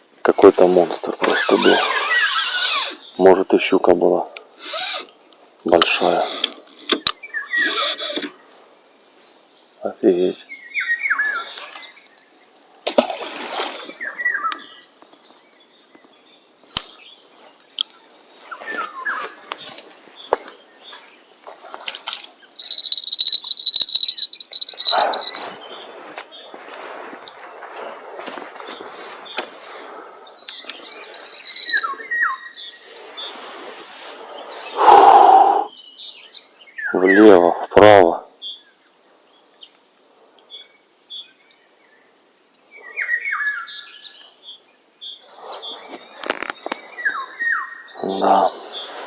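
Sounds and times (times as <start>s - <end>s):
wild birds chirping: 0.0s - 49.0s
rustle with sharp clicks: 21.4s - 29.7s, 45.7s - 47.4s
cricket trilling: 22.6s - 25.9s, 30.6s - 32.8s
quick falling bird calls: 22.6s - 26.8s, 28.7s - 35.7s.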